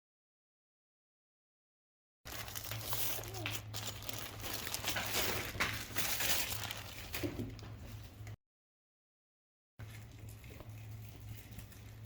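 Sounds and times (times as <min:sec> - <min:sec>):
plastic packaging crinkling: 0:02.3 - 0:08.3.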